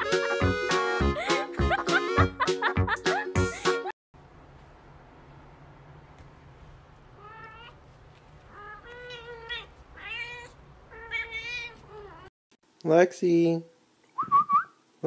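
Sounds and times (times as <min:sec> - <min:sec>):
kittens mewing: 0:08.5 - 0:12.3.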